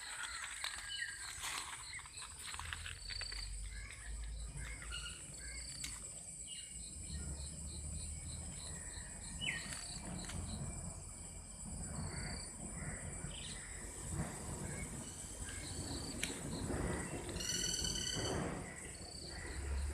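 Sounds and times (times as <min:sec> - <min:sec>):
birds calling: 0:00.0 - 0:10.8, 0:11.8 - 0:19.9
high-pitched insect drone: 0:04.1 - 0:19.9.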